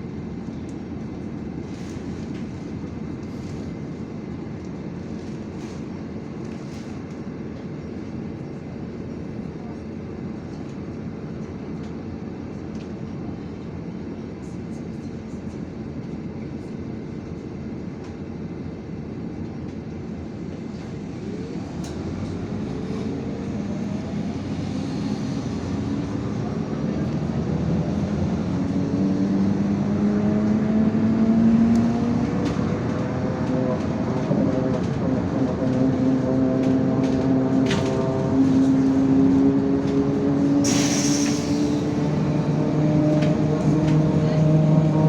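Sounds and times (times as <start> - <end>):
bus accelerating: 19.1 - 45.0.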